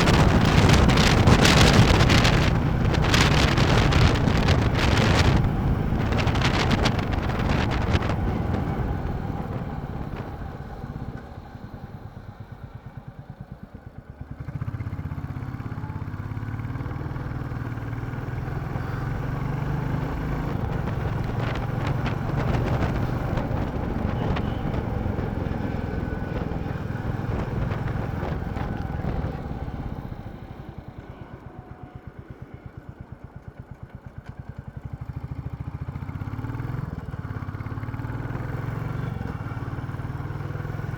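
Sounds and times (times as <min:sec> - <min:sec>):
wind noise on microphone: 0:00.0 - 0:12.7, 0:16.2 - 0:31.4.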